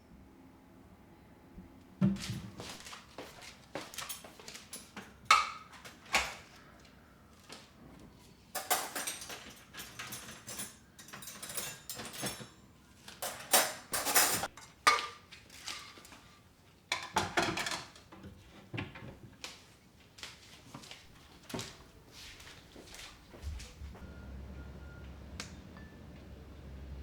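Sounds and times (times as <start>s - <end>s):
dishes clinking and knocking: 8.5s - 12.6s, 13.2s - 15.9s, 16.9s - 18.0s.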